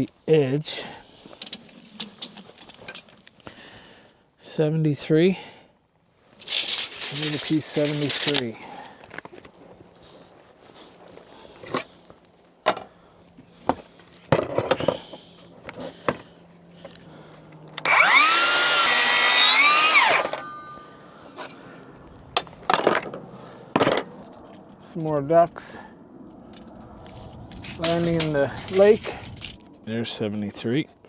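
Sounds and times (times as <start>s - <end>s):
lumber and tools clicking: 1.2s - 3.6s, 6.4s - 9.6s, 13.6s - 25.2s, 27.5s - 29.8s
power saw running: 6.4s - 8.4s, 15.0s - 22.6s, 27.6s - 29.6s.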